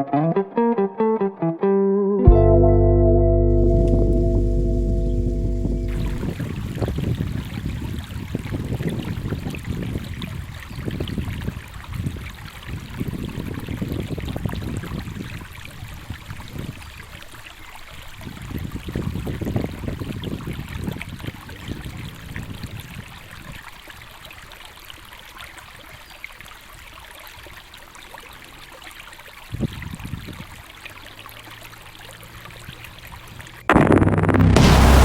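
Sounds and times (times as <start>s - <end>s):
loud music: 2.3s - 6.3s, 33.7s - 35.0s
wind buffeting microphone: 3.9s - 17.0s, 18.0s - 23.6s, 29.5s - 30.6s.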